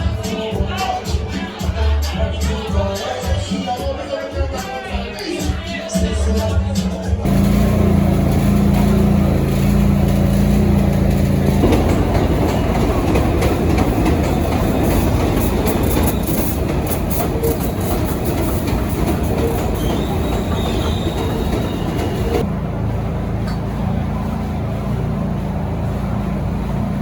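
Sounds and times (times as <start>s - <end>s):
subway train motor hum: 7.2s - 27.0s
train car rumbling along track: 7.2s - 27.0s.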